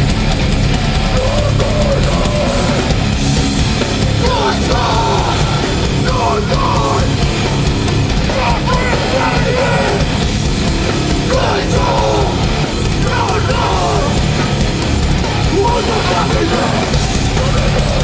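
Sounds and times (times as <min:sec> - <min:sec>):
distorted instruments: 0:00.0 - 0:18.0
drums: 0:00.0 - 0:18.0
shouted vocals: 0:01.1 - 0:03.2, 0:04.0 - 0:07.3, 0:08.1 - 0:10.3, 0:11.1 - 0:14.6, 0:15.3 - 0:18.0.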